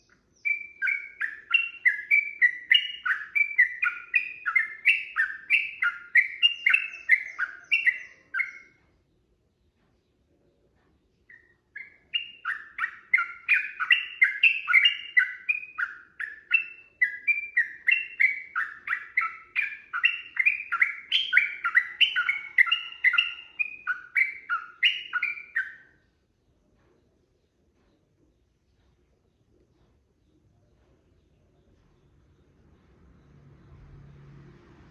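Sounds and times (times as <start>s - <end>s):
bird singing chattering notes: 0.0s - 8.8s, 11.2s - 26.0s.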